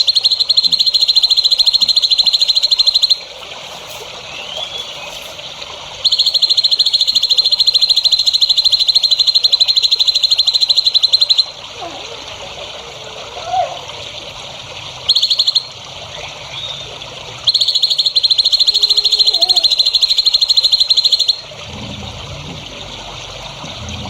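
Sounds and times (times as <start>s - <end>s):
faint chirp: 0.0s - 5.4s, 17.5s - 21.4s
running water hiss: 0.0s - 24.0s
high-pitched pulsed animal trill: 17.6s - 21.4s.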